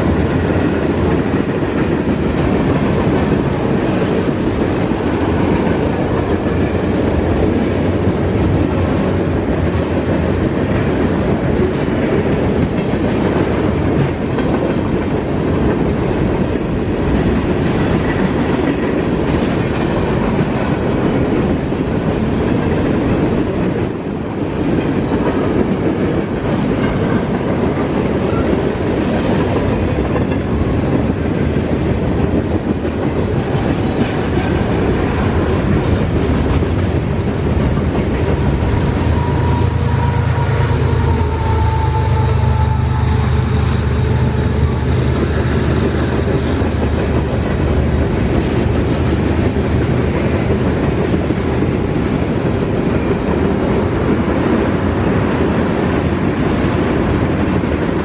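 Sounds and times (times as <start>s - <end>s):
freight train wheels clacking: 0.0s - 58.0s
locomotive engine drone: 32.0s - 55.3s.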